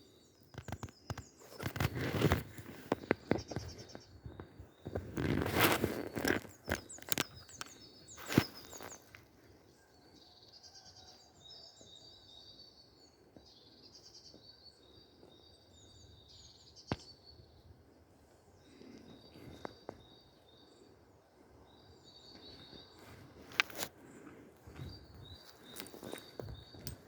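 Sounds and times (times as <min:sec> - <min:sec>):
songbirds singing: 0:00.0 - 0:27.0
rustling: 0:00.6 - 0:03.9, 0:04.9 - 0:09.2.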